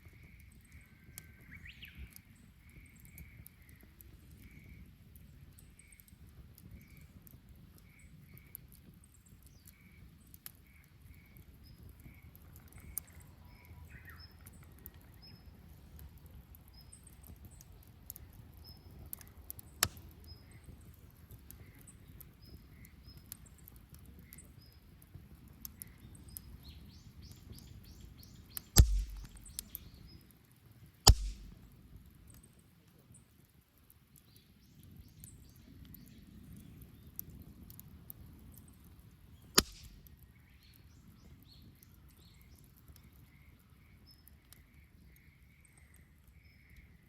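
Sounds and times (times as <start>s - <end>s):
wood fire crackling: 0.0s - 47.0s
bird chirping: 26.7s - 30.2s
loud thumps: 28.8s - 29.6s, 31.1s - 31.6s.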